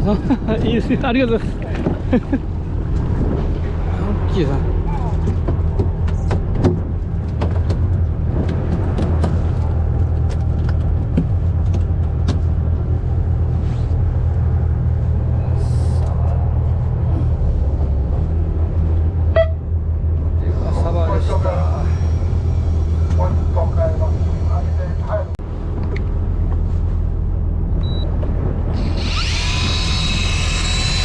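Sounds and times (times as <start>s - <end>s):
boat engine humming: 0.0s - 31.0s
sharp clicks and knocks: 5.2s - 12.5s.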